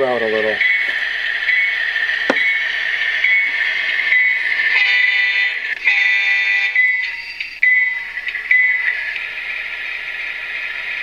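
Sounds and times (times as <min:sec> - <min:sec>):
locomotive bell ringing: 0:00.0 - 0:09.2.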